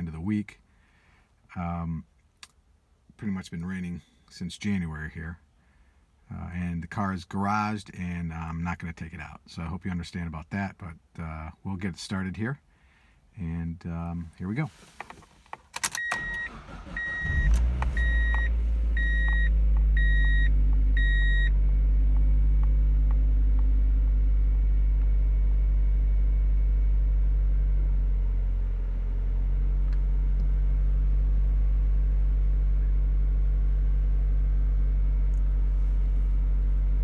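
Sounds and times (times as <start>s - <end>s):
car engine idling: 14.0s - 25.8s, 27.2s - 37.0s
starter cranking: 15.0s - 20.8s
warning chime beeping: 16.0s - 21.5s.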